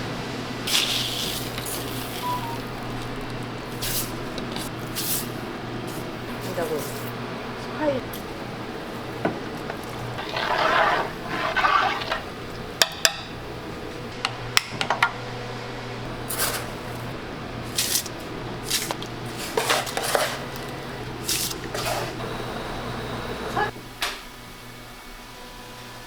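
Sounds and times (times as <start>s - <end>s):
scraping and rustling: 9.5s - 12.6s, 17.7s - 22.2s.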